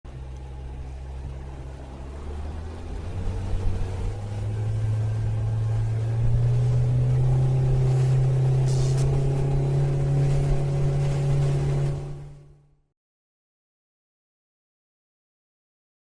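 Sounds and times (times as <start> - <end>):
rushing water: 0.1 - 12.6
electric outboard motor hum: 0.1 - 12.8.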